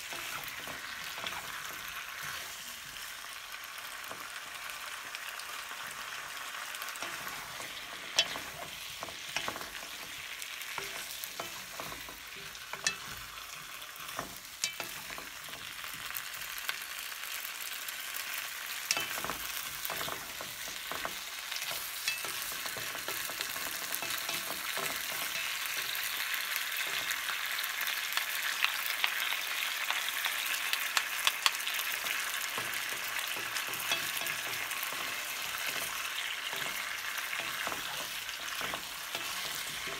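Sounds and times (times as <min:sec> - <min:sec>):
vegetables sizzling in a frying pan: 0:00.0 - 0:39.9
wooden spatulas clacking on pan: 0:07.0 - 0:13.2, 0:18.8 - 0:26.2, 0:30.7 - 0:39.9.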